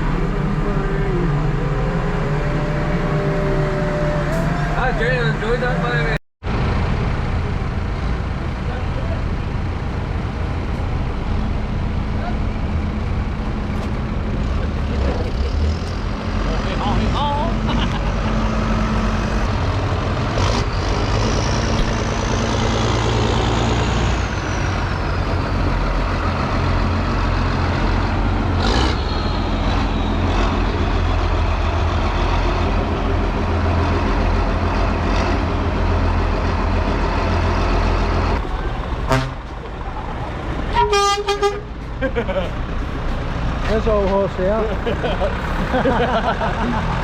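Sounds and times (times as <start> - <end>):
tractor diesel engine drone: 0.0 - 47.0.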